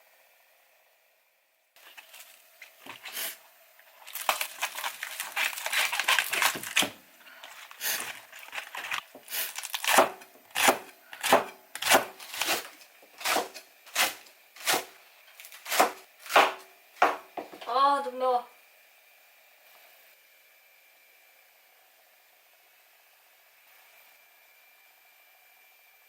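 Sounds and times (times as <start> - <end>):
plastic packaging crinkling and tearing: 1.8 - 16.4
knife chopping on cutting board: 9.2 - 17.6.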